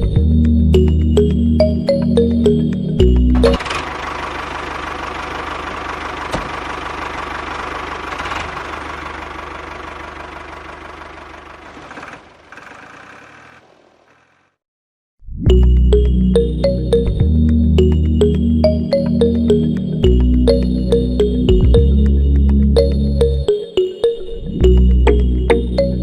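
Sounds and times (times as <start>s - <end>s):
small motor rattling: 3.4s - 14.6s.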